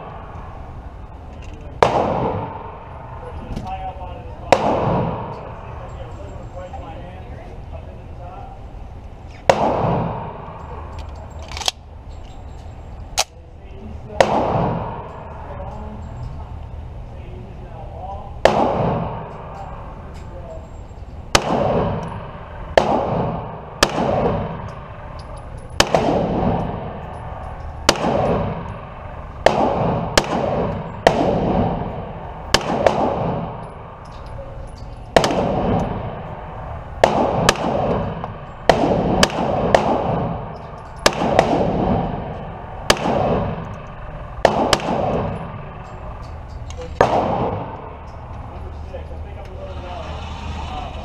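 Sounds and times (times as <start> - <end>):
pistol shots echoing: 1.8 - 5.9, 9.4 - 11.9, 14.0 - 15.6, 18.3 - 20.6, 21.3 - 49.1.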